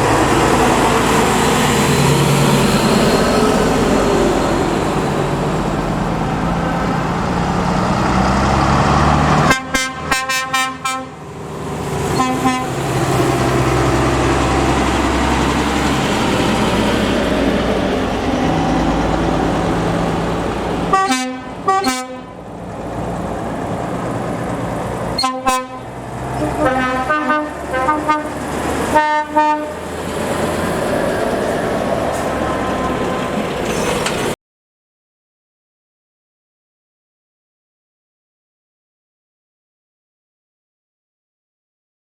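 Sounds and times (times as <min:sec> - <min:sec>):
trucks diesel rumble: 0:00.0 - 0:34.4
truck air horn toots: 0:09.4 - 0:11.2, 0:12.1 - 0:13.1, 0:20.9 - 0:22.4, 0:25.2 - 0:29.9.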